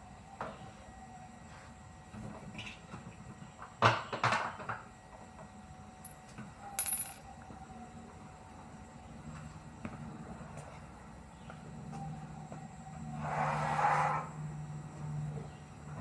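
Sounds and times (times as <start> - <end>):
metal objects clinking: 6.8 - 7.2
ringing metal clink: 6.8 - 7.2.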